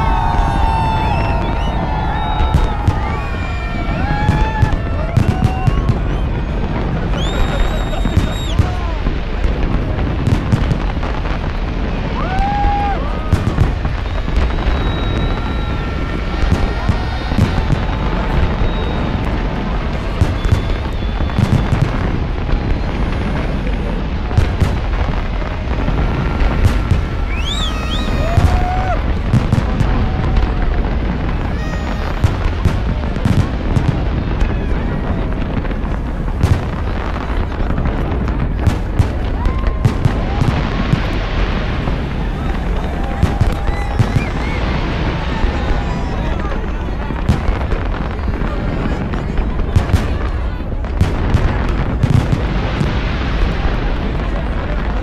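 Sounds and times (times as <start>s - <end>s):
spectator whooping: 0.0s - 9.4s, 10.4s - 35.0s, 38.9s - 46.6s
fireworks bangs: 0.0s - 55.0s.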